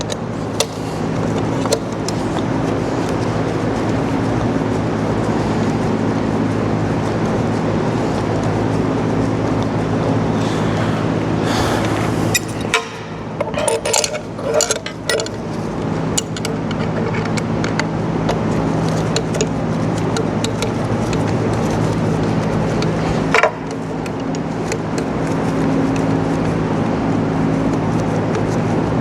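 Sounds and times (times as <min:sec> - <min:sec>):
workshop machine hum: 0:00.0 - 0:26.9.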